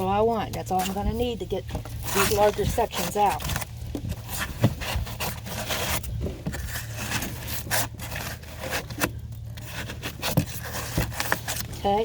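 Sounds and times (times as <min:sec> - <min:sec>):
chisel scraping foam: 0:04.2 - 0:11.6.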